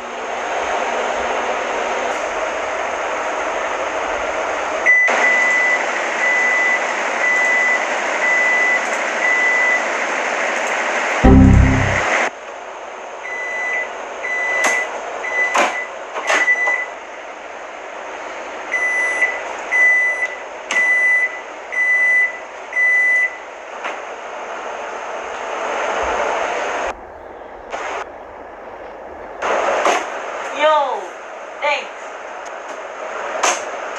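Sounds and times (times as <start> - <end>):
button clicks: 11.2 - 12.0.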